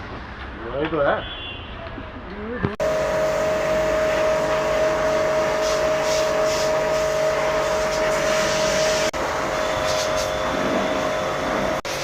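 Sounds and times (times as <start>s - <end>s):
jet washer motor whine: 2.8s - 12.0s
water spray hiss: 3.0s - 9.2s, 9.8s - 12.0s.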